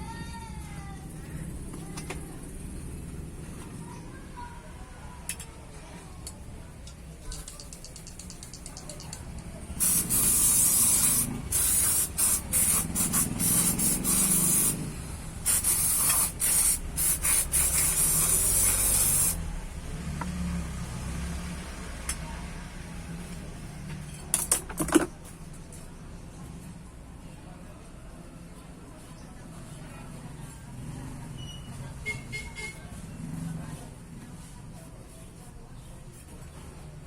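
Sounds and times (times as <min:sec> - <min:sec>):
sharp clicks: 0:06.3 - 0:09.5
aerosol spray hissing: 0:09.8 - 0:19.4.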